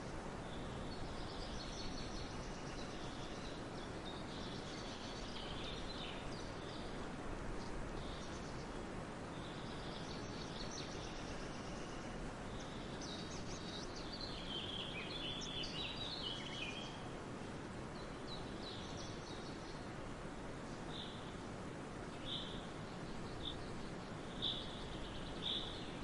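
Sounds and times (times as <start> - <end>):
steady background hiss: 0.0 - 26.0
birds chirping and trilling: 9.4 - 17.0.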